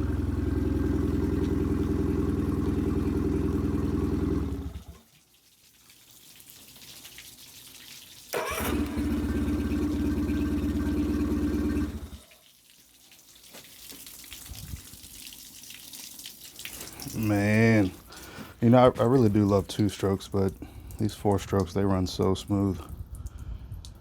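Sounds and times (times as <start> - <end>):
outboard motor running: 0.0 - 5.0, 8.4 - 12.2.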